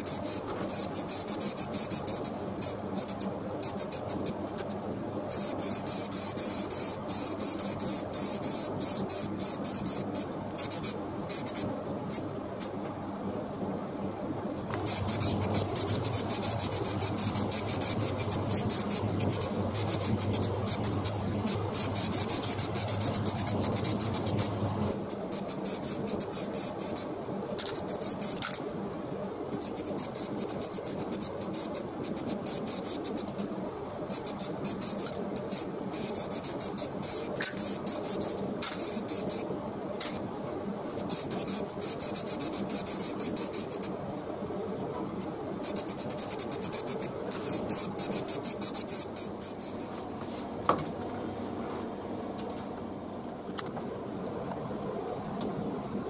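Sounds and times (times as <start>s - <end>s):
spray paint hissing: 0.0s - 4.4s, 5.3s - 12.7s, 14.8s - 28.6s, 29.5s - 33.5s, 34.1s - 40.2s, 41.1s - 43.9s, 45.6s - 50.2s.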